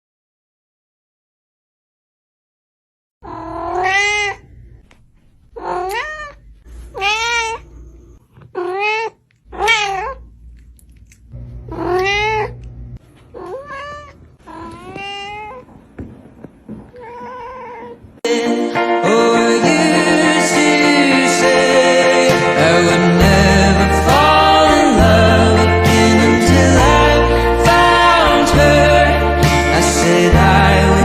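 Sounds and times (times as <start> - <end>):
cat meowing: 3.2 - 4.5, 5.6 - 7.8, 8.5 - 10.3, 11.7 - 12.6, 13.3 - 15.7, 16.9 - 18.0.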